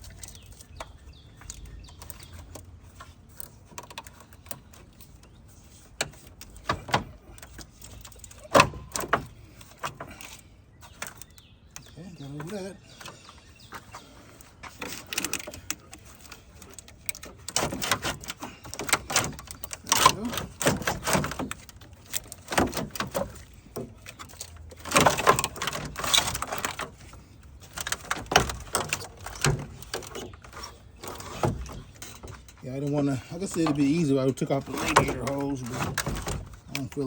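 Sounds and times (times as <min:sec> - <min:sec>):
metallic knocks and clanks: 0:14.7 - 0:37.0.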